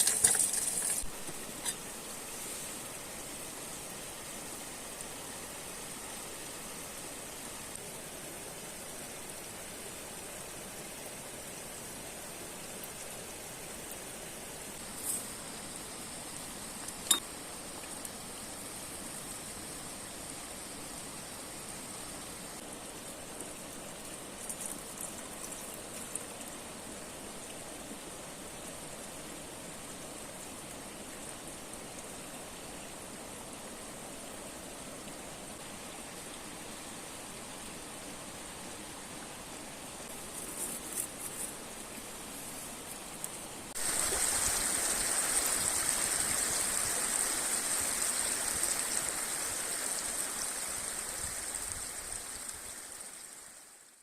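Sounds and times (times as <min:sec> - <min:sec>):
river and waterfall rushing: 0:41.5 - 0:53.7.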